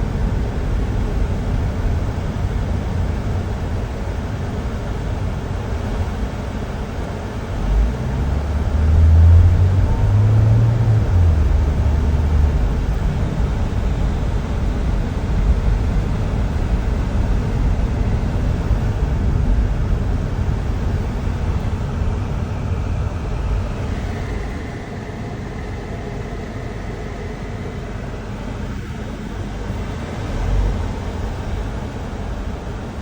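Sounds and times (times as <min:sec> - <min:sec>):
car road and engine rumble: 0:00.0 - 0:33.0.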